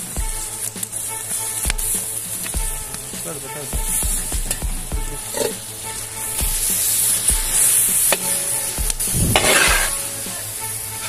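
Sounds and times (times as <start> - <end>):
vegetables sizzling in hot oil: 0.0 - 11.0
metal ladle scraping pot: 5.2 - 10.2.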